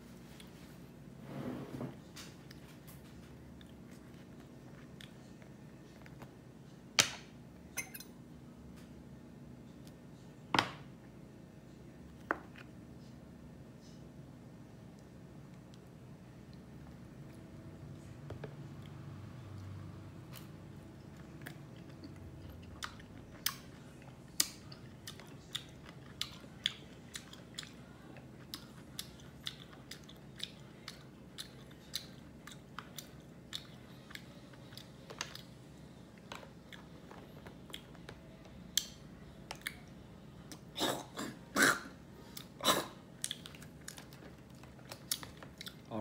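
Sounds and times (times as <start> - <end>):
chewing fruit wet crunches: 18.7 - 41.3, 42.2 - 46.0.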